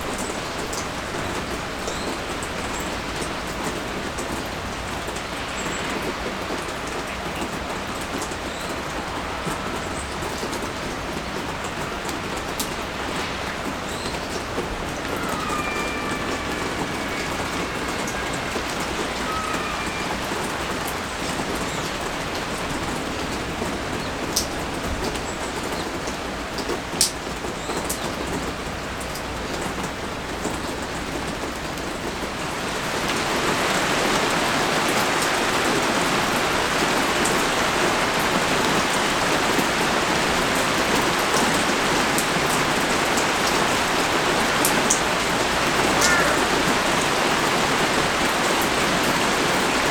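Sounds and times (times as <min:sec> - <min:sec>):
rain falling: 0:00.0 - 0:49.9
water dripping: 0:40.9 - 0:49.6.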